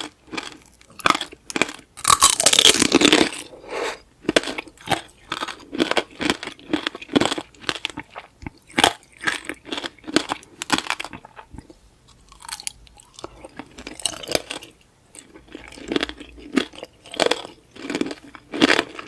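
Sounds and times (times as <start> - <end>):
candy coating crunching while chewed: 0.0 - 19.0.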